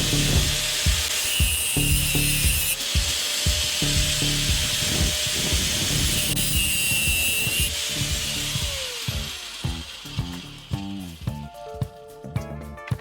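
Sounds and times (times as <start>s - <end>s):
power tool cutting wood: 0.0s - 11.4s
background music with steady beat: 0.0s - 13.0s.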